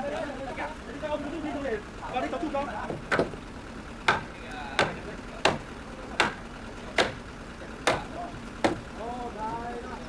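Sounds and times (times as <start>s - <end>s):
hammering on timber: 2.8s - 9.0s.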